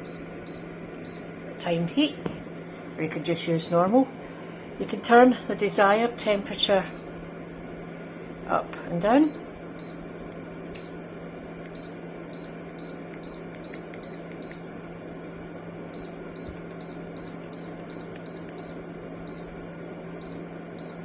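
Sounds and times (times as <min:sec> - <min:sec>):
heater control panel beeps: 0:00.0 - 0:01.3, 0:06.2 - 0:07.2, 0:09.2 - 0:10.1, 0:10.7 - 0:11.0, 0:11.6 - 0:14.7, 0:15.9 - 0:21.0
heater fan whir with hum: 0:00.0 - 0:21.0.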